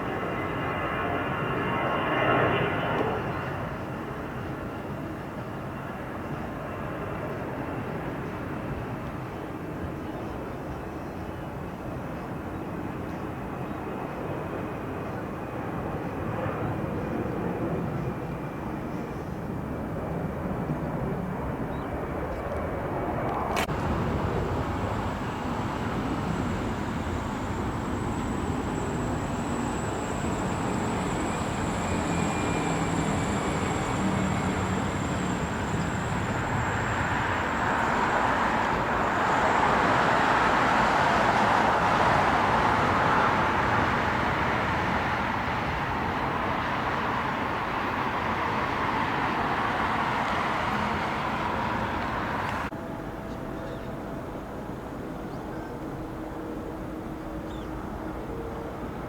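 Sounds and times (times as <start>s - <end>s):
jet engines passing: 13.9s - 53.6s.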